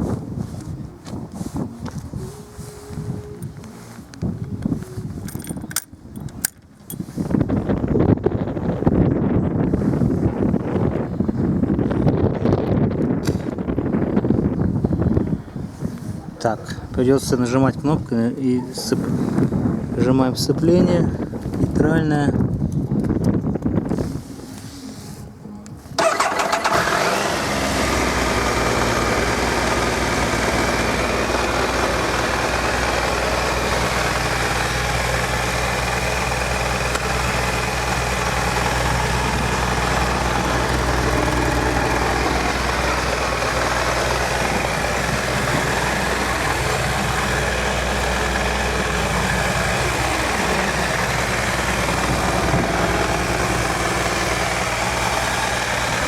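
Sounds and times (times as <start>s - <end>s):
motorcycle engine starting and idling: 4.6s - 7.0s, 26.0s - 56.0s.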